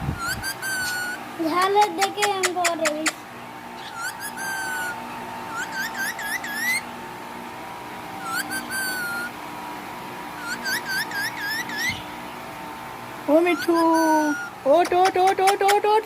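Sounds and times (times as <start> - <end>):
parakeet whistling chirps: 0.2 - 1.2, 3.8 - 6.9, 8.2 - 9.4, 10.4 - 12.2, 13.4 - 14.6.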